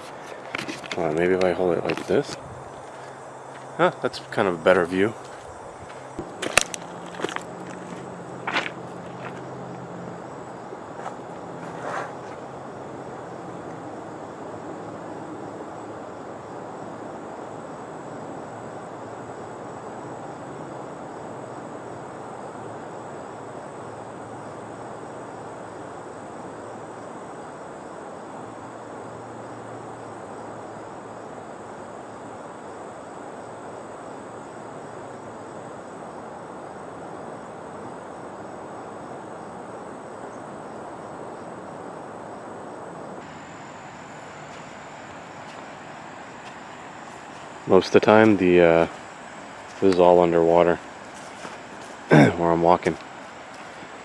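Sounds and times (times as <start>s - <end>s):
rushing background noise: 0.0s - 17.3s, 35.6s - 54.0s
insects trilling: 0.0s - 54.0s.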